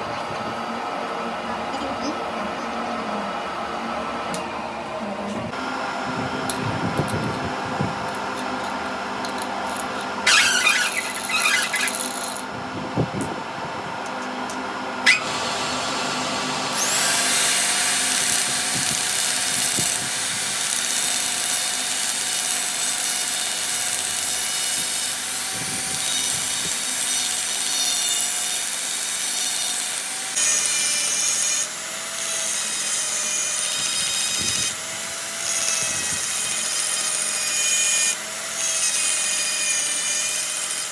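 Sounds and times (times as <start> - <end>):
power tool scraping metal: 8.1 - 12.5, 15.0 - 15.6, 16.7 - 40.9.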